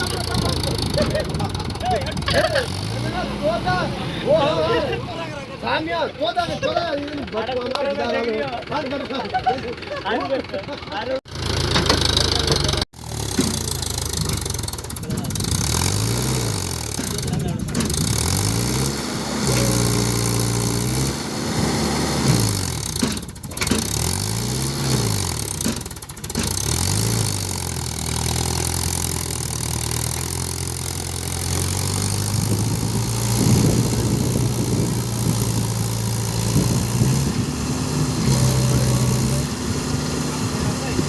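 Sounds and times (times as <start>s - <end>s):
tractor diesel engine revving: 0.0s - 6.0s, 7.0s - 41.0s.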